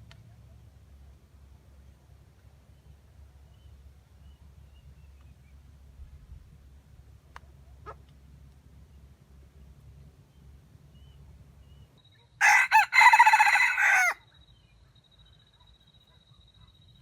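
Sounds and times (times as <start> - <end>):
rooster crowing: 12.4 - 14.2.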